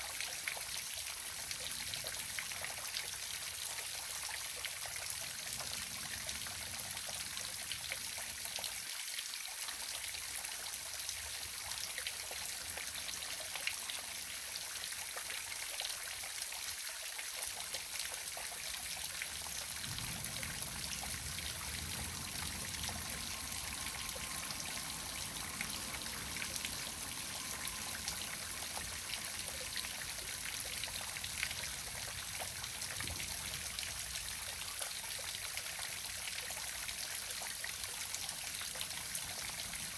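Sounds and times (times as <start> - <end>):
waterfall rushing: 19.4 - 32.7.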